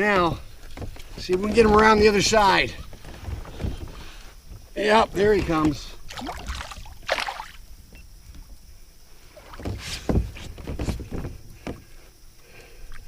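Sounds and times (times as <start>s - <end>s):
water splashing: 4.8s - 7.7s.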